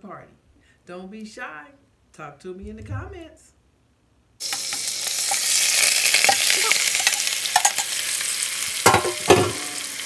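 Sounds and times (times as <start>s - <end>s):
greens sizzling in grease: 4.4s - 10.0s.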